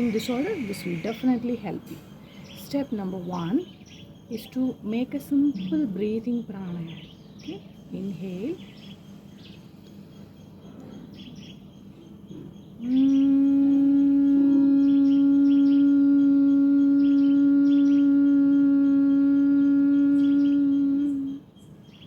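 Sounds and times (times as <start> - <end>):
woman humming low note: 12.8 - 21.5.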